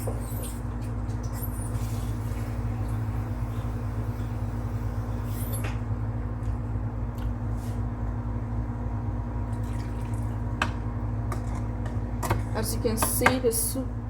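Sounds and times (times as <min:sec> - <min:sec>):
pots bubbling on a stove: 0:00.0 - 0:07.5
steady low hum: 0:00.0 - 0:14.0.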